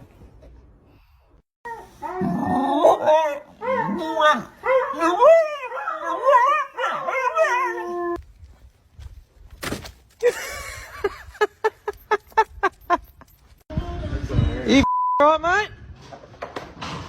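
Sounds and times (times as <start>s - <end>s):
dog howling and whining: 1.7s - 8.2s.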